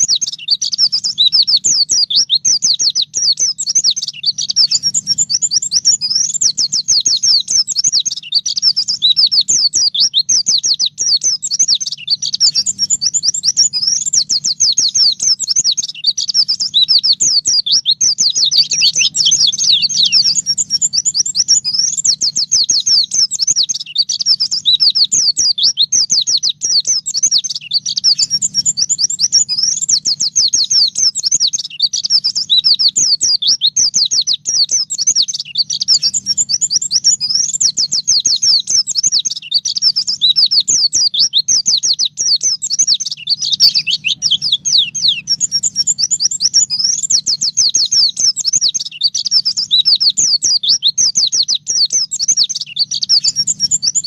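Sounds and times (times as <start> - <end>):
bird twittering song: 0.0 - 54.0.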